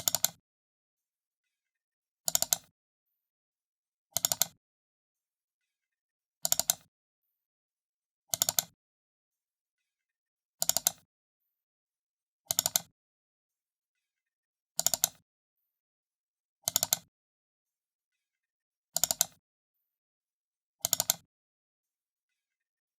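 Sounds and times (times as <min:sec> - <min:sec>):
computer mouse double-clicking: 0:00.0 - 0:00.4, 0:02.3 - 0:02.7, 0:04.2 - 0:04.6, 0:06.4 - 0:06.9, 0:08.3 - 0:08.7, 0:10.6 - 0:11.0, 0:12.5 - 0:12.9, 0:14.8 - 0:15.2, 0:16.7 - 0:17.1, 0:19.0 - 0:19.4, 0:20.8 - 0:21.2.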